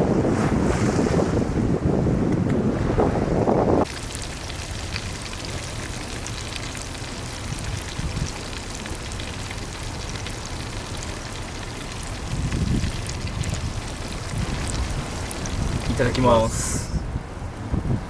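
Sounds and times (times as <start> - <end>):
oil frying with fine pops: 3.8 - 16.4.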